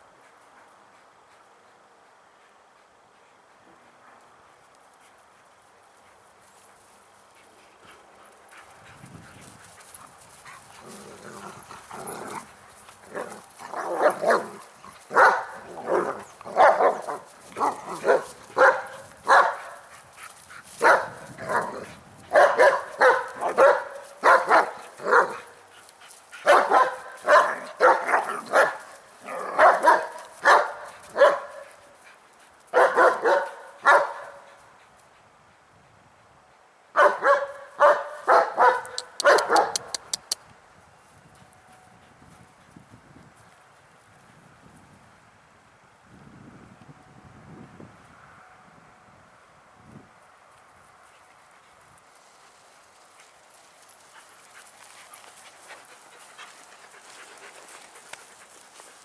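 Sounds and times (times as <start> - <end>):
dog barking: 13.8 - 19.8, 20.8 - 21.7, 22.3 - 25.5, 26.4 - 28.8, 29.4 - 31.6, 32.7 - 34.4, 37.0 - 40.0.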